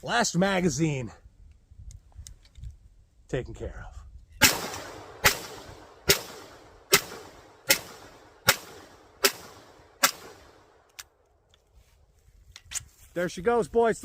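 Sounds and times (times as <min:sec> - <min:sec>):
pistol shots with echo: 0:04.4 - 0:10.6.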